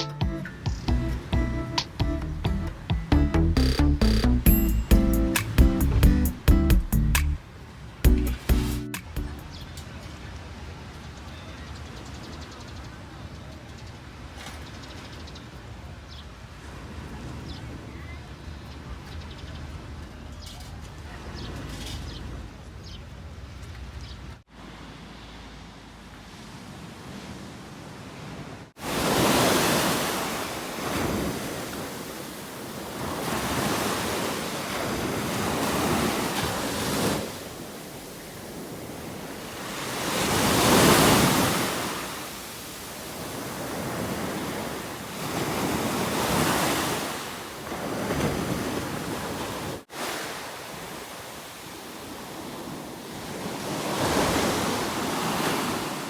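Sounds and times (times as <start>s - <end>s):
ocean waves breaking: 24.6s - 56.0s.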